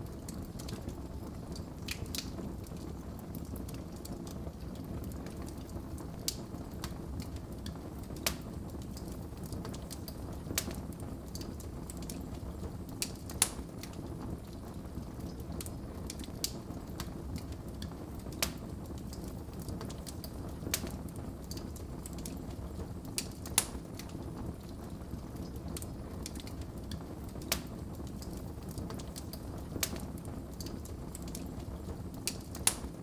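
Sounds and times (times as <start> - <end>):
wood fire crackling: 0.0 - 33.0
sharp pops of burning logs: 6.2 - 14.1, 15.2 - 22.4, 23.1 - 24.2, 25.4 - 33.0.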